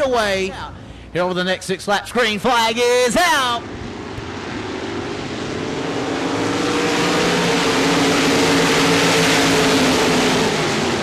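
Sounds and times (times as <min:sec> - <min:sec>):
race car engines accelerating: 0:03.5 - 0:11.0.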